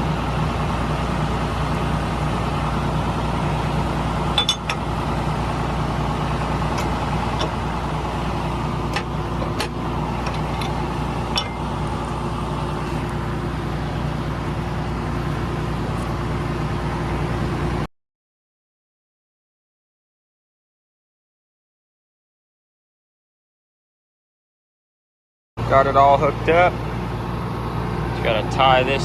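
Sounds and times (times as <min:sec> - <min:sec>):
vehicle engine running: 0:00.0 - 0:17.9, 0:25.6 - 0:29.0.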